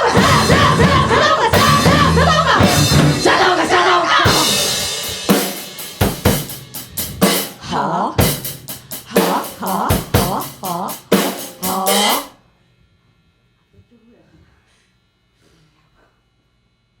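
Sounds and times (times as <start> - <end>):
drum kit hits: 0.0 - 7.6, 8.2 - 12.3
punk rock band playing: 0.0 - 7.6, 8.2 - 12.3.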